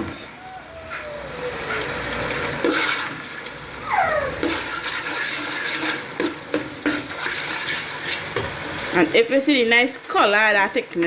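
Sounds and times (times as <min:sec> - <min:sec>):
spoon scraping a cooking pot: 0:01.8 - 0:03.5, 0:04.3 - 0:08.8.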